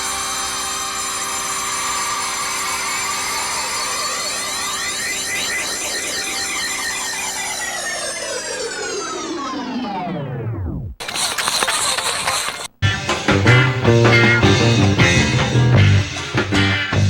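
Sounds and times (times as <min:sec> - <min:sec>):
loud drone of stacked tones: 0:00.0 - 0:11.0.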